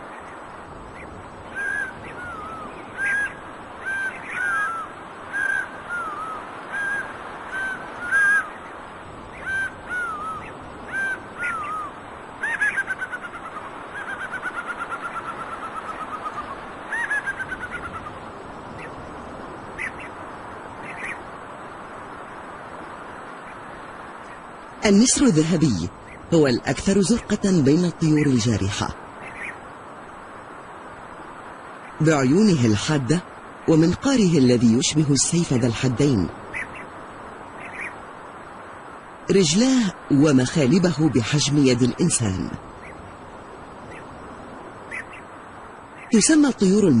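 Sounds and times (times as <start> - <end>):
bird of prey calling: 0.9 - 19.0, 19.8 - 20.2, 29.2 - 29.6, 36.4 - 38.1, 43.8 - 44.2, 44.8 - 45.3.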